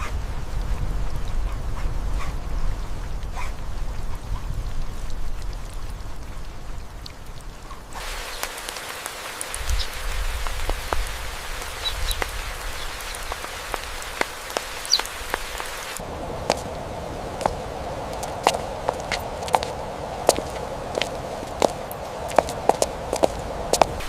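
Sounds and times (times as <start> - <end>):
rain pattering: 0.0 - 24.0
drip ticks: 6.9 - 15.7.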